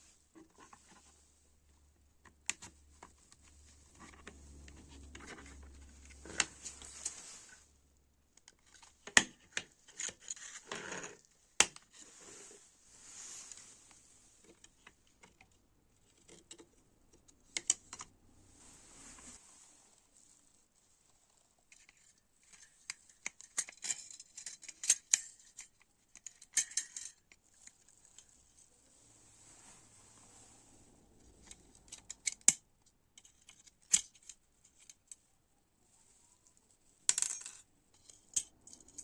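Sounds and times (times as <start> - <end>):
scraping or rubbing: 2.8 - 7.7, 11.9 - 14.6, 18.4 - 23.0, 27.1 - 32.2.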